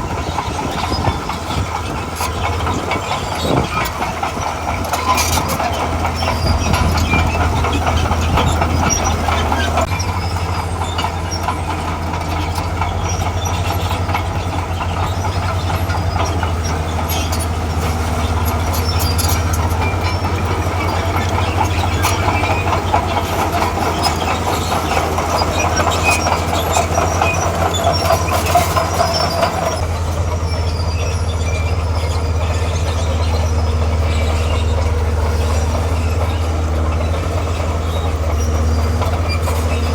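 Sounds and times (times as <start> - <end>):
diesel engine under load: 0.0 - 39.9
steel tracks clanking: 0.0 - 39.9.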